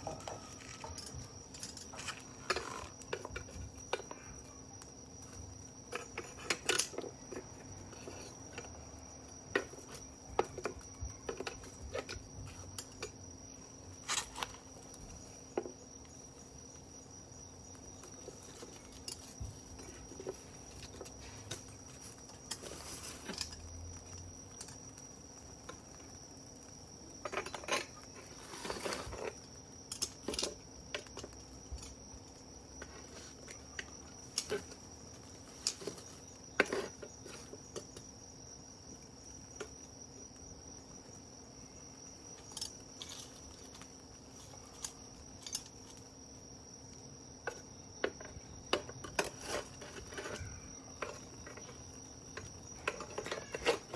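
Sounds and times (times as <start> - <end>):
wood fire crackling: 0.0 - 47.2
high insect trill: 0.0 - 53.9.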